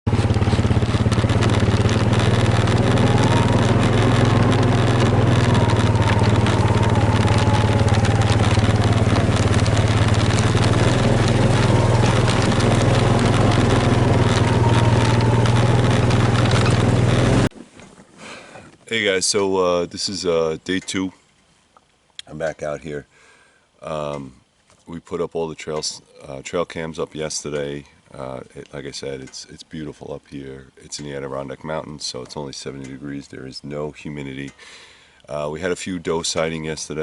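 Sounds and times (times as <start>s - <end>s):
small engine running: 0.1s - 17.5s.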